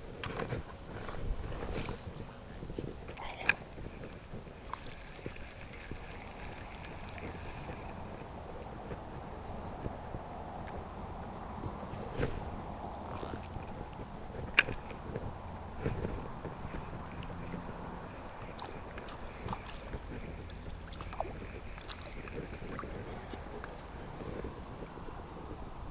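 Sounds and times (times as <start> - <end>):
high insect drone: 0.0 - 25.9
outdoor background rush: 0.0 - 25.9
small clicks: 12.9 - 15.2.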